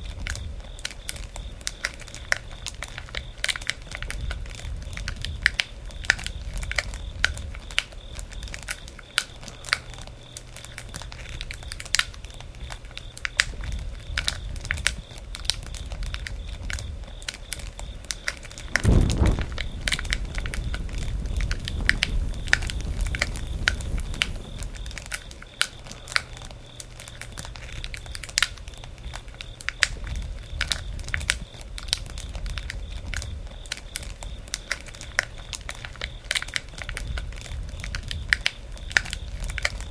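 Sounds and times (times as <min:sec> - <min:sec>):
bonfire crackling and popping: 0:18.6 - 0:25.1
low rumble of burning: 0:18.6 - 0:25.2
low rush of sound: 0:18.7 - 0:24.9.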